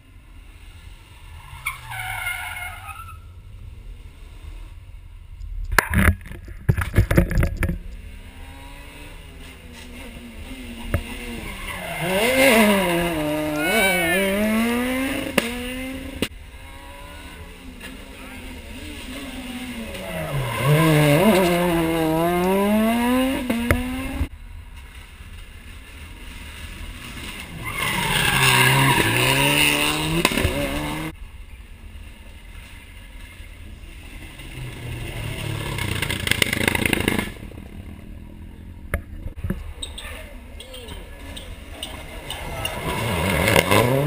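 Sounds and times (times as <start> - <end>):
rally car engines revving: 6.8 - 24.3, 25.8 - 31.2, 32.6 - 44.0.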